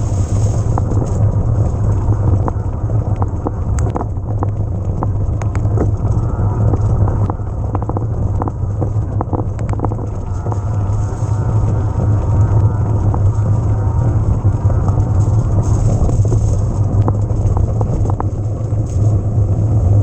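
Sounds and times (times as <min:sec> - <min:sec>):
sharp ticks and clicks: 0:00.0 - 0:19.3
bike tyres rumbling on trail: 0:00.0 - 0:20.0
wind buffeting microphone: 0:00.0 - 0:20.0.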